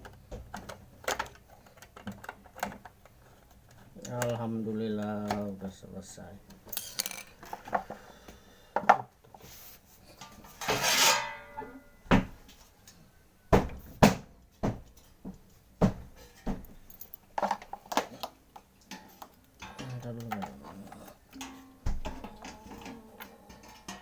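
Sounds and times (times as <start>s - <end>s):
hard objects knocking and clicking: 0.0s - 4.4s, 13.6s - 24.0s
scraping rustle: 9.4s - 11.6s.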